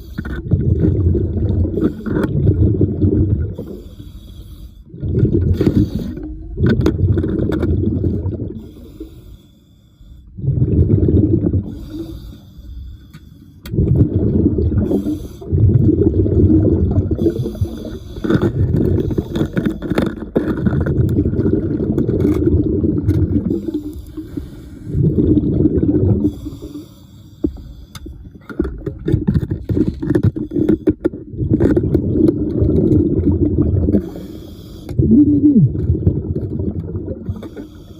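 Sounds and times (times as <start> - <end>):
diver exhaling bubbles: 0.0 - 4.0, 4.9 - 9.0, 10.4 - 12.3, 13.7 - 26.9, 28.1 - 37.9
diver breathing through regulator: 3.6 - 6.4, 8.5 - 10.4, 11.6 - 13.6, 14.7 - 15.6, 17.1 - 19.9, 23.4 - 25.2, 26.1 - 28.3, 34.0 - 35.0, 37.2 - 37.9.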